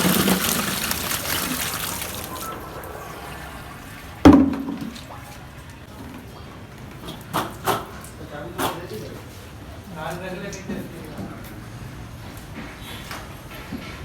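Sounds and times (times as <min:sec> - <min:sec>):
water pouring: 0:00.0 - 0:05.9.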